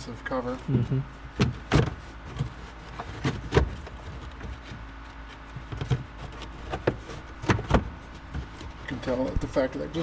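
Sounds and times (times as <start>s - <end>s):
steady low hum: 0.0s - 10.0s
knocks and clicks of car parts: 1.3s - 9.6s.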